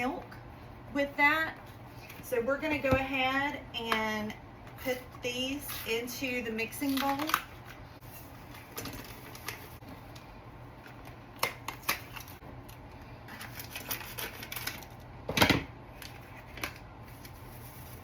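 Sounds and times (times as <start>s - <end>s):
paper and plastic rustling: 6.8s - 10.2s, 13.3s - 15.0s, 15.9s - 18.0s.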